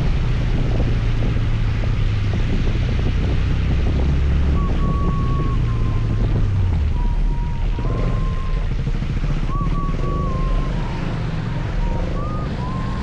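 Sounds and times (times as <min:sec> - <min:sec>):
scooter engine and road rumble: 0:00.0 - 0:13.0
wind buffeting microphone: 0:00.0 - 0:13.0
thin wavering whistle: 0:04.5 - 0:08.8, 0:09.4 - 0:13.0.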